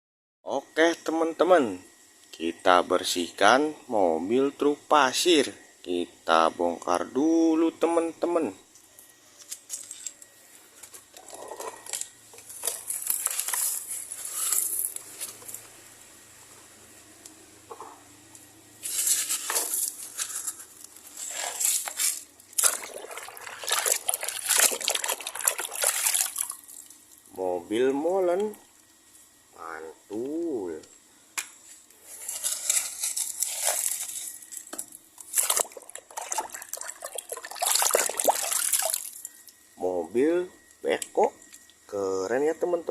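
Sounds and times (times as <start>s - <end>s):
gritty hiss: 11.5s - 17.4s, 18.7s - 22.8s.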